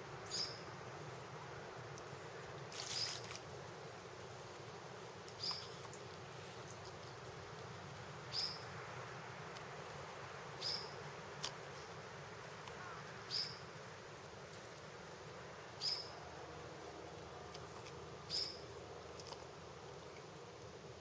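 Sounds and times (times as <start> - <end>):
steady background hiss: 0.0 - 21.0
small animal chirp: 0.3 - 0.7, 8.3 - 8.6, 10.6 - 11.0, 15.8 - 16.2, 18.3 - 18.6.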